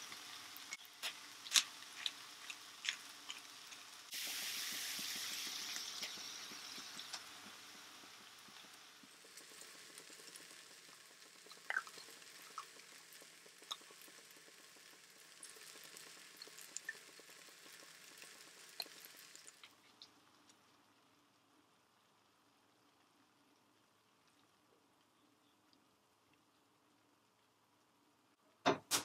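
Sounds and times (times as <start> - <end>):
vegetables sizzling in a pan: 0.0 - 21.1
small pops and clicks: 11.5 - 13.0, 13.6 - 14.3.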